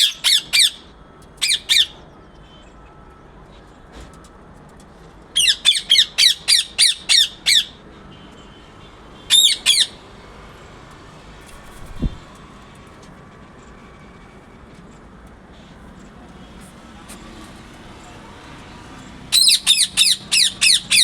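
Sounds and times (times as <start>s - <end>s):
parrot squawking: 0.0s - 2.0s, 5.4s - 7.8s, 9.3s - 10.0s, 19.3s - 21.0s.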